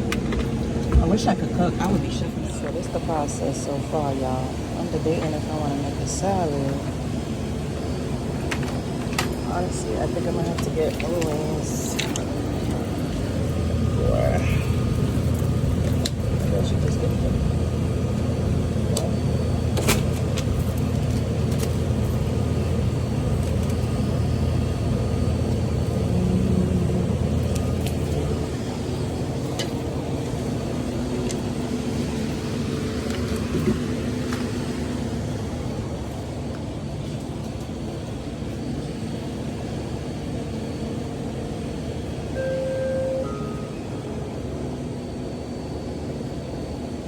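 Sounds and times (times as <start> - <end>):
short beep: 42.3 - 44.1.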